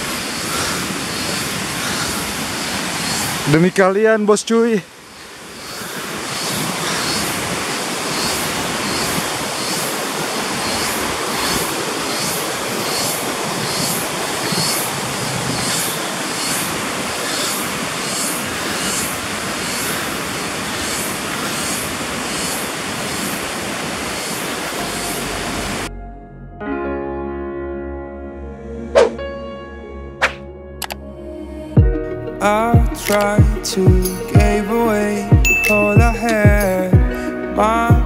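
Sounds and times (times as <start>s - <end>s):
rushing river water: 0.0s - 25.9s
high-pitched pulsing: 35.4s - 37.0s.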